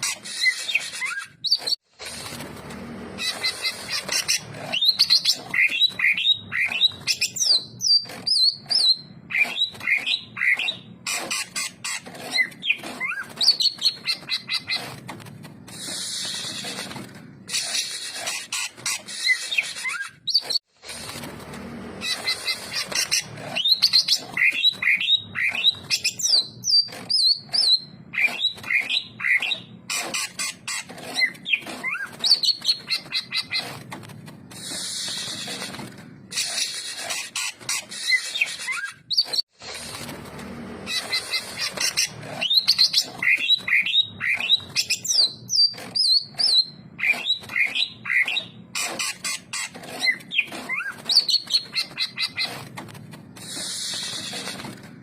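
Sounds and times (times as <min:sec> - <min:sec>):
bird singing chattering song: 0:03.2 - 0:14.9, 0:22.0 - 0:33.8, 0:40.9 - 0:52.6
hissy rasping bursts: 0:34.5 - 0:38.8, 0:53.4 - 0:54.8.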